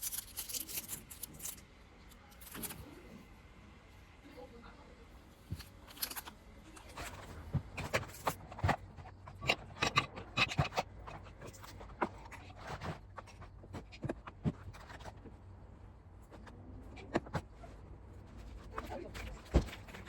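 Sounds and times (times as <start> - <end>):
small objects clicking and knocking: 0.0 - 2.8, 5.5 - 15.3.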